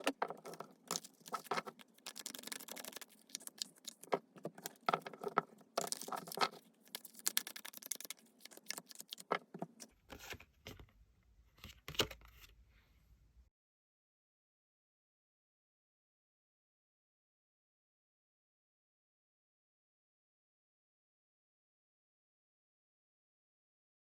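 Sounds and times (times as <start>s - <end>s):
cards being shuffled: 0.0s - 10.4s.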